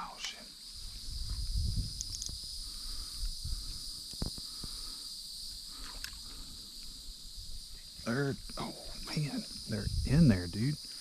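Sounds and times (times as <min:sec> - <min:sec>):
insect chorus droning: 0:00.0 - 0:11.0
low rumbling noise: 0:08.0 - 0:10.6.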